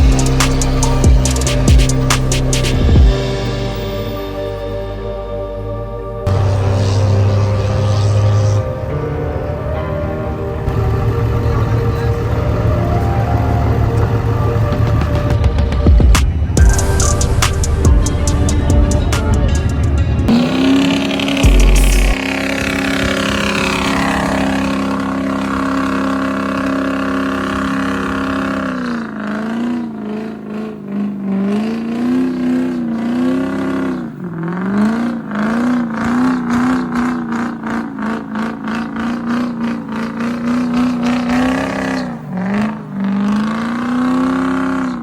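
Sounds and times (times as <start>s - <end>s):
truck engine revving: 0.0s - 45.0s.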